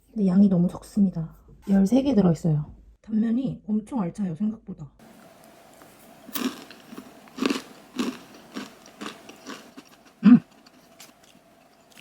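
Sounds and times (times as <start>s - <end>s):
crunchy chewing of candy bar: 5.4s - 12.0s
person humming mm: 10.2s - 10.6s.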